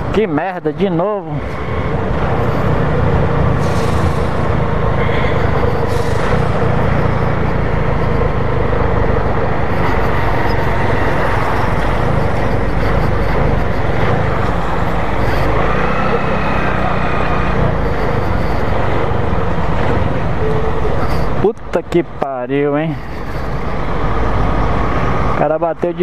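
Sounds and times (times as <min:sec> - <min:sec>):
motorcycle engine running: 0:01.9 - 0:21.0.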